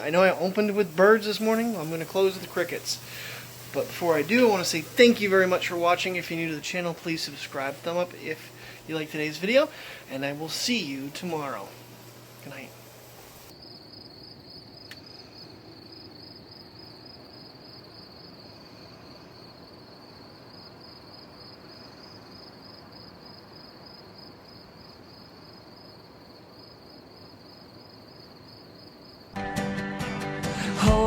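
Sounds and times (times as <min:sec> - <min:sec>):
faint hiss: 0:00.0 - 0:29.3
crickets chirping: 0:00.0 - 0:29.4.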